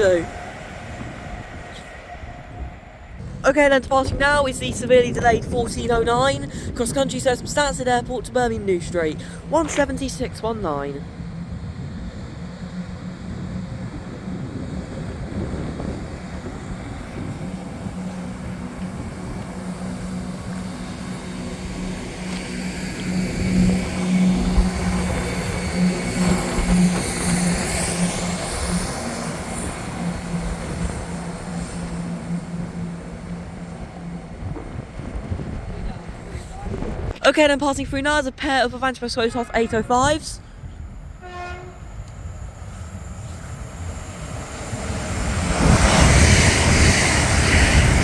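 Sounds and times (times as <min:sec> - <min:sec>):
diesel train engines droning: 0:00.0 - 0:48.0
train passing by: 0:00.0 - 0:48.0.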